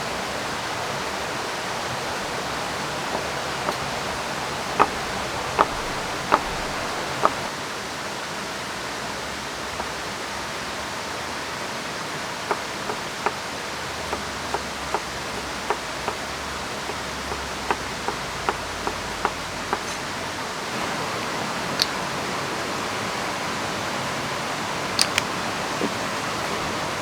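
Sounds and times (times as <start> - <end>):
falling rain: 0.0 - 27.0
river rushing: 0.0 - 27.0
sharp ticks: 4.8 - 5.0, 5.6 - 7.4.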